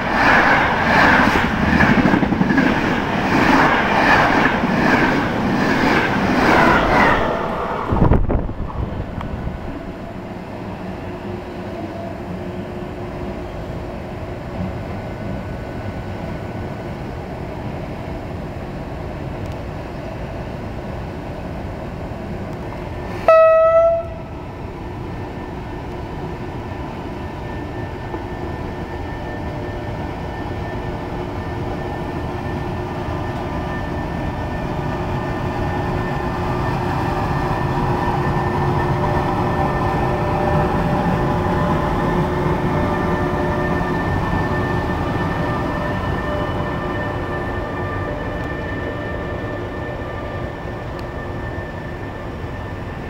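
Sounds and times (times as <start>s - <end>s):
electric locomotive running past: 0.0s - 53.0s
train horn blast: 23.2s - 24.4s.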